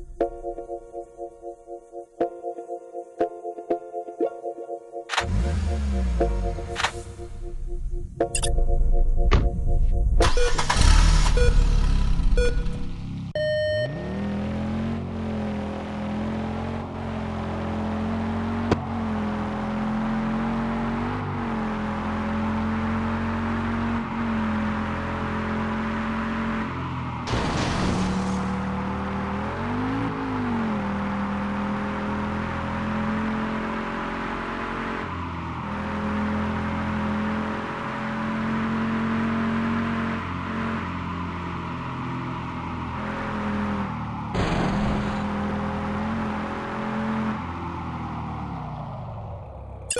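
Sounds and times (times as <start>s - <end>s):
race car engine revving: 13.8s - 48.6s.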